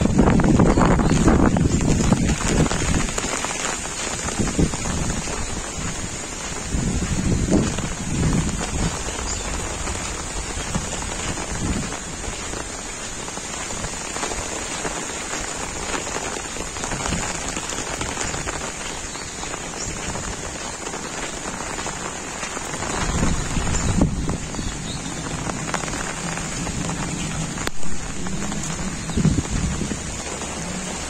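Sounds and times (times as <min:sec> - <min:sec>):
heavy rain falling: 0:00.0 - 0:31.0
low rumbles: 0:22.9 - 0:31.0.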